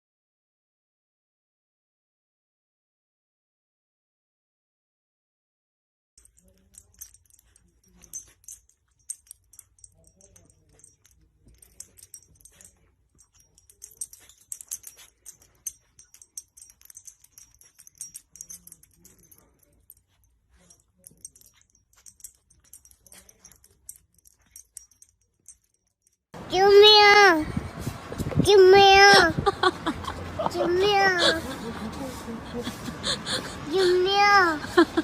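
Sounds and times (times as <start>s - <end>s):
metallic jingling: 6.2s - 27.4s, 28.4s - 35.0s.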